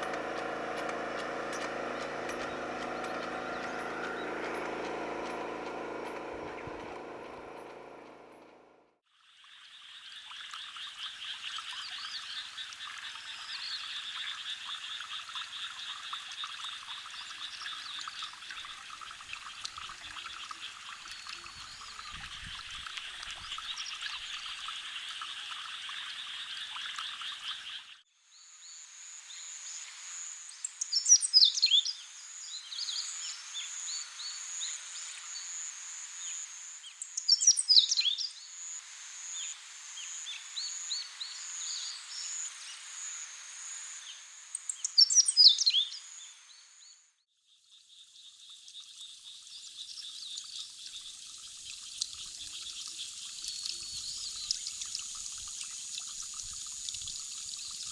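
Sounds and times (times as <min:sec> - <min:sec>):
frogs chorus: 0:09.6 - 0:46.4
bird singing falling phrases: 0:37.0 - 0:38.2, 0:44.6 - 0:46.0
high insect trill: 0:47.9 - 0:57.9.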